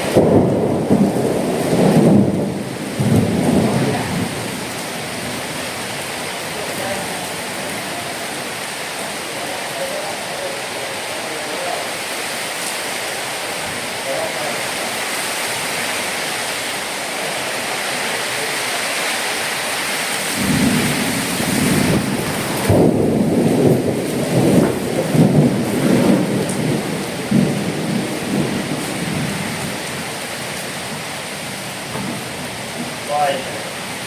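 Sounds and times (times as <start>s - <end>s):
rolling thunder: 0.0s - 8.9s, 20.2s - 34.0s
heavy rain hissing: 0.0s - 34.0s.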